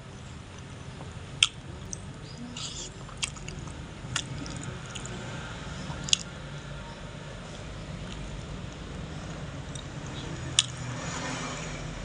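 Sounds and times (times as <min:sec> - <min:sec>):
wet chewing and mouth-smacking: 0:00.6 - 0:05.2, 0:05.9 - 0:06.3, 0:08.0 - 0:10.8.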